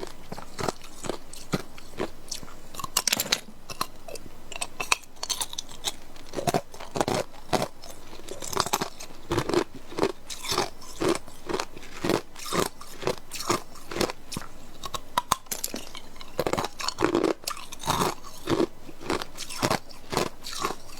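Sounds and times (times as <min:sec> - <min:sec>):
ice cubes being chewed: 0:00.0 - 0:20.9.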